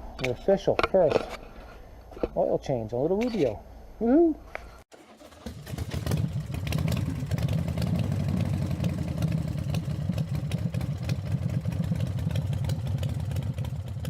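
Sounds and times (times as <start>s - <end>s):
motorcycle engine idling: 5.2s - 14.0s.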